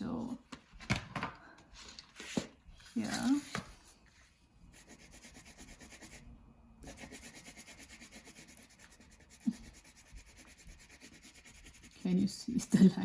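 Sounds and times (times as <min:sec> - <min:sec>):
crayon scratching on paper: 0:04.7 - 0:06.2, 0:06.8 - 0:12.8.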